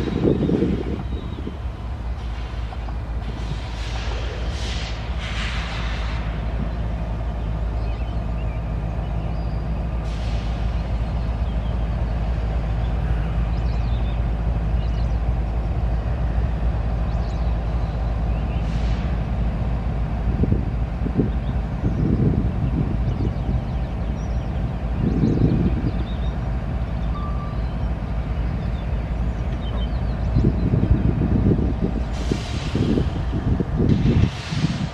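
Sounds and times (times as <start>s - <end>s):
droning engine hum: 0.0s - 34.9s
freight train rumbling past: 0.0s - 34.9s
brief hisses: 3.4s - 6.4s, 34.0s - 34.9s.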